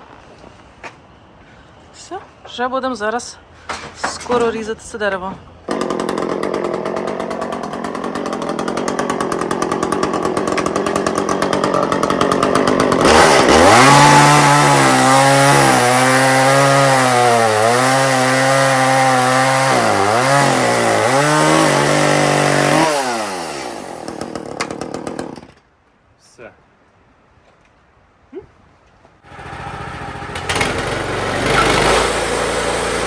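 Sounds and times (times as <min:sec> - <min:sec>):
band sawmill engine running: 0:05.7 - 0:25.5, 0:29.3 - 0:33.0
saw blade cutting log: 0:05.7 - 0:25.5, 0:29.3 - 0:33.0.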